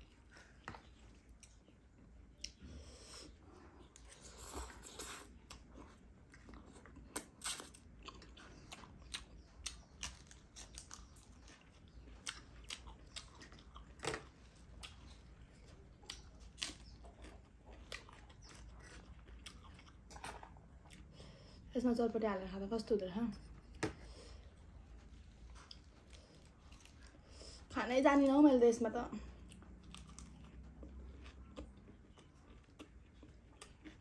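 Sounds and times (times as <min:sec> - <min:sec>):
close chewing of noodles: 0:00.0 - 0:21.7, 0:29.2 - 0:34.0.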